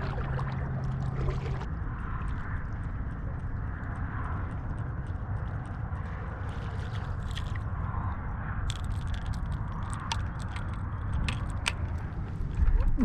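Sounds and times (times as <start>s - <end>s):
water lapping against kayak hull: 0.0s - 1.7s
wind rumble on microphone: 0.0s - 13.0s.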